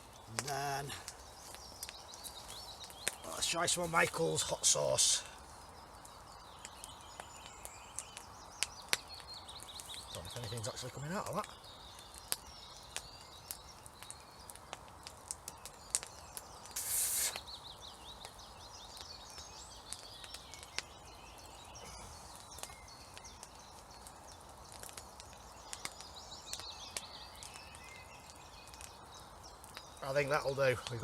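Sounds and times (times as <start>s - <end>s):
birds chirping: 0.0s - 31.0s
campfire crackling and popping: 0.0s - 31.0s
brief hiss: 16.7s - 17.5s.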